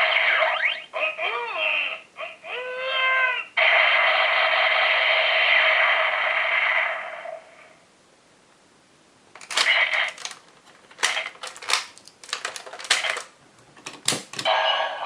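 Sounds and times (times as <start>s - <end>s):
plastic toy parts clicking: 9.4s - 14.5s.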